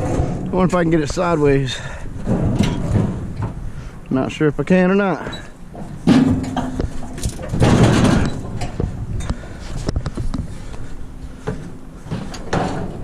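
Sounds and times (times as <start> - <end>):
metal grill clanking: 5.3 - 8.8.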